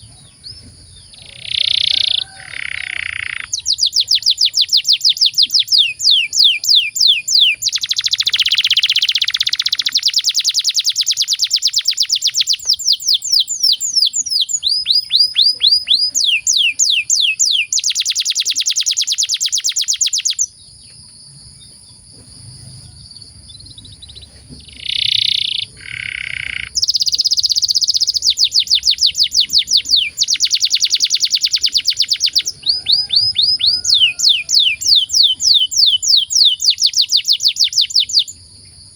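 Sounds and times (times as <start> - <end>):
canary singing rapid trills: 0.0 - 20.6, 22.6 - 38.5.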